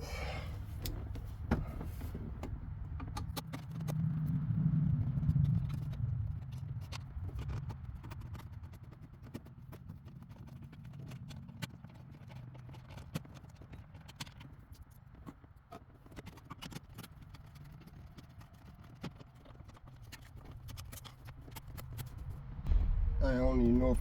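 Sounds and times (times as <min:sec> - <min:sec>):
low steady hum: 0:21.3 - 0:24.0.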